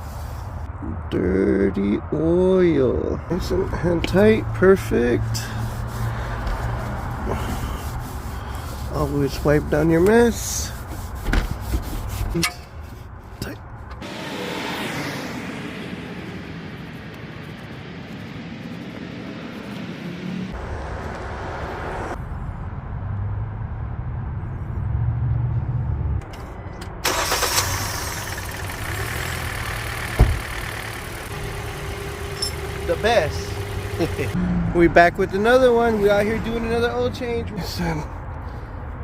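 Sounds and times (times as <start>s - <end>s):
car engine idling: 27.0s - 34.4s.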